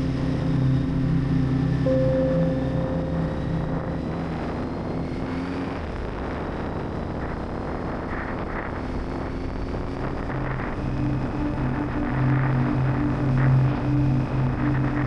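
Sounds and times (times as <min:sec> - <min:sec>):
wind and road noise: 0:03.4 - 0:15.0.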